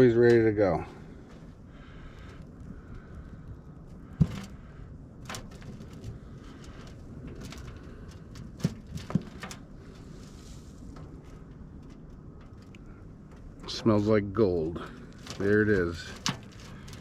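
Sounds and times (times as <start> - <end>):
scraping and rustling: 4.1 - 13.8, 14.8 - 17.0.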